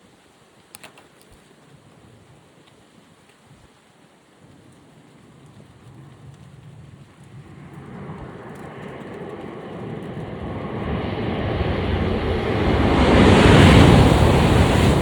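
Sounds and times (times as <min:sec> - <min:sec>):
high-speed train rushing roar: 0:09.3 - 0:15.0.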